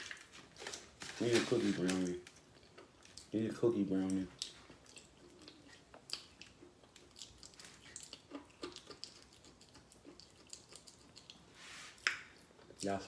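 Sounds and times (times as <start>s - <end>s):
person chewing: 2.3s - 3.4s, 4.0s - 13.0s.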